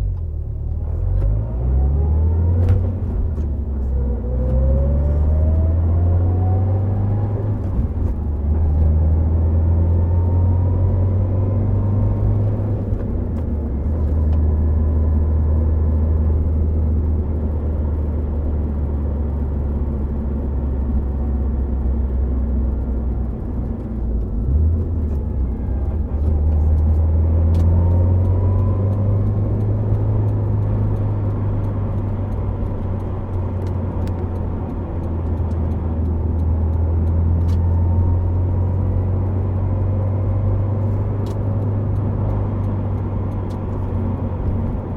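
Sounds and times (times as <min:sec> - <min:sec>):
tyre and road noise: 0:19.2 - 0:44.9.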